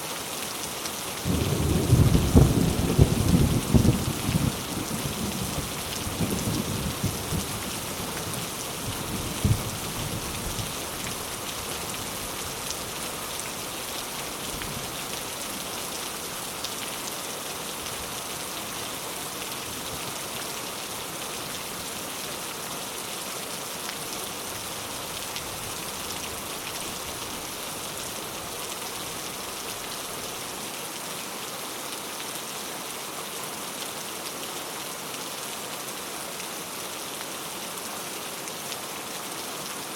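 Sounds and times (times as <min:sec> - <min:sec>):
steady rain falling: 0:00.0 - 0:39.9
low rumble of thunder: 0:01.3 - 0:07.7, 0:09.0 - 0:10.7.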